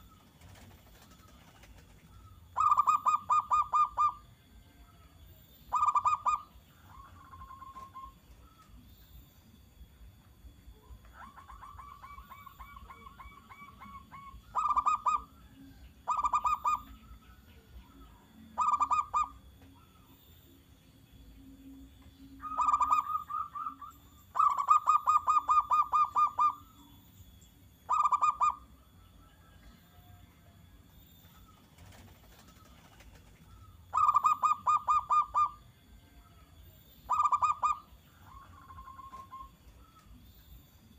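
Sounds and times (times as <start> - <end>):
dove cooing: 0.0 - 4.3, 5.7 - 8.6, 10.8 - 20.1, 22.4 - 26.8, 27.9 - 28.7, 31.4 - 35.7, 37.1 - 40.1.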